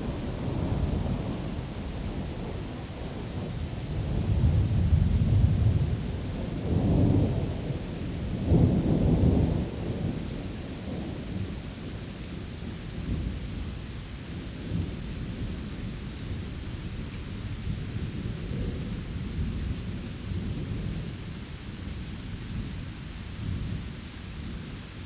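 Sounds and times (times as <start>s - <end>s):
rolling thunder: 0.0s - 12.0s, 14.6s - 21.2s
steady rain: 0.0s - 25.0s.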